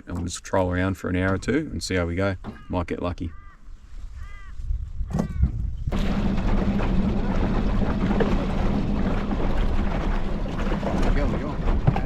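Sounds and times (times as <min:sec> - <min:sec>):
wind: 0:00.0 - 0:12.0
outboard motor running: 0:05.9 - 0:12.0
water noise: 0:05.9 - 0:12.0.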